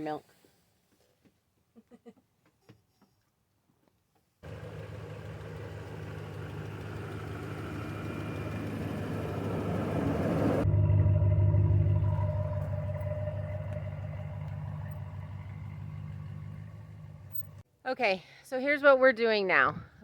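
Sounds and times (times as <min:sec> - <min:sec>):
engine running: 0:04.4 - 0:17.6.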